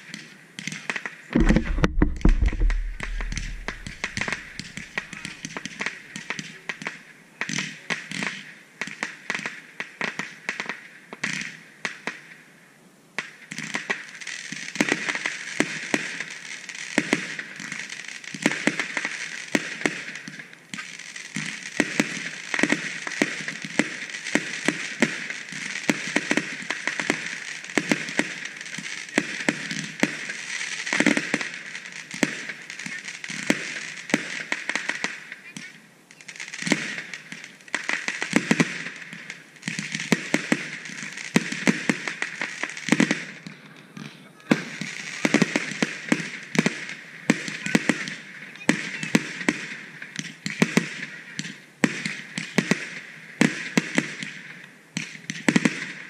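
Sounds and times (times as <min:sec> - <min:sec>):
fireworks bangs and pops: 0:00.0 - 0:12.3, 0:13.2 - 0:56.0
fireworks crackling hiss: 0:00.0 - 0:12.5, 0:13.2 - 0:56.0.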